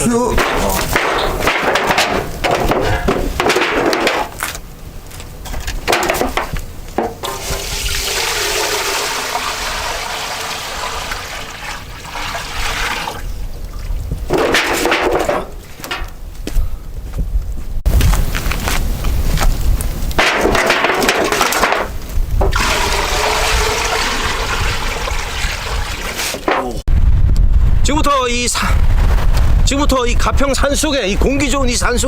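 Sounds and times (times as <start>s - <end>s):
knocking and handling sounds: 0.4s - 4.6s, 5.2s - 7.7s, 14.2s - 16.6s, 20.2s - 22.6s
water rushing: 7.1s - 14.4s, 22.5s - 26.8s.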